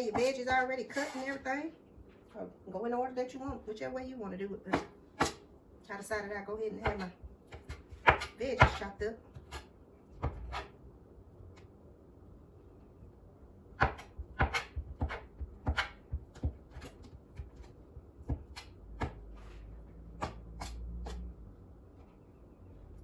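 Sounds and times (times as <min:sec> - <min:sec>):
knife chopping on a cutting board: 0:00.0 - 0:01.4, 0:04.7 - 0:05.4, 0:06.8 - 0:10.8, 0:13.8 - 0:19.4, 0:20.1 - 0:21.3.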